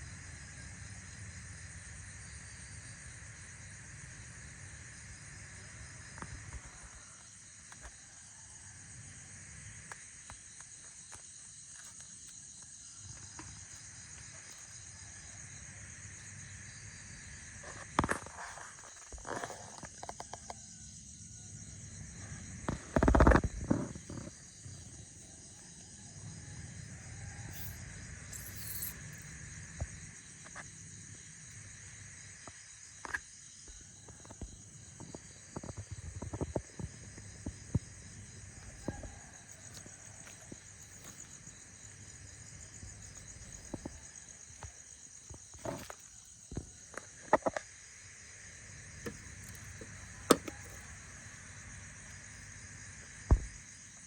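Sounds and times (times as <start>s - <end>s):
insects chirring: 0.0s - 54.0s
clicks and knocks: 49.1s - 50.9s.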